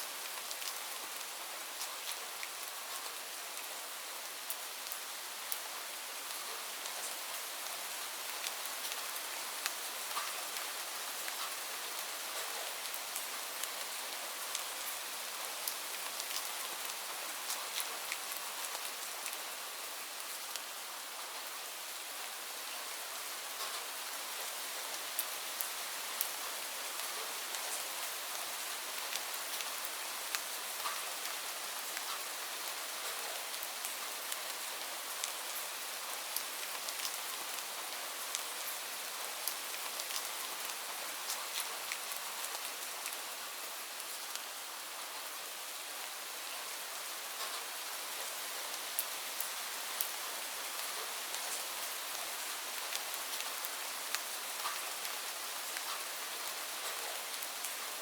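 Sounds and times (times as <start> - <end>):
raindrops ticking on surface: 7.7 - 13.9, 15.6 - 19.5, 23.5 - 43.3, 47.4 - 58.0.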